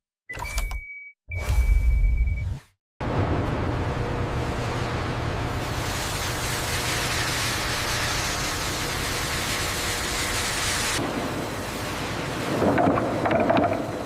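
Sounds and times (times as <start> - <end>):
low hum: 1.4 - 8.3
industrial machinery hissing: 3.7 - 14.0.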